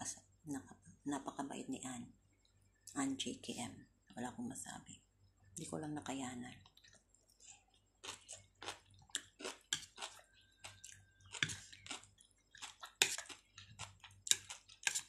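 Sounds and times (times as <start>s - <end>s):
person chewing food: 6.6s - 15.0s.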